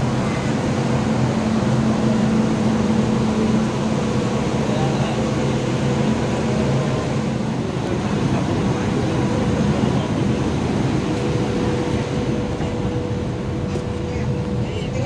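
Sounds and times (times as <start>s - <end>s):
train mechanical hum: 0.0s - 15.0s.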